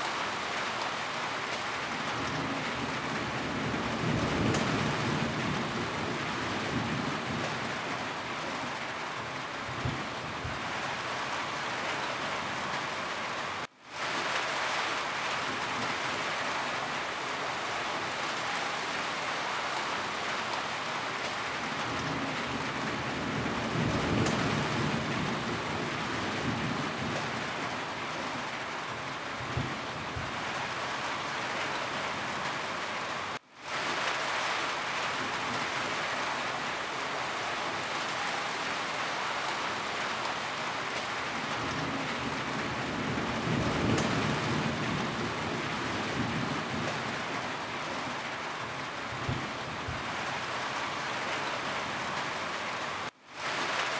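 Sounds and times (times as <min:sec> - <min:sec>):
rain falling on a roof: 0:00.0 - 0:53.9
low rumble of thunder: 0:02.1 - 0:08.0, 0:21.7 - 0:28.2, 0:29.4 - 0:30.6, 0:41.4 - 0:47.5, 0:49.1 - 0:50.2.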